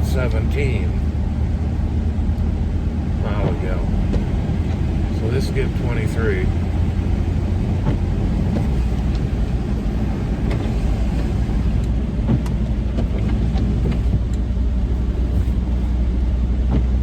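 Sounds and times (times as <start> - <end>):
van road and engine rumble: 0.0 - 17.0
light ticks: 2.3 - 2.5, 11.8 - 14.5.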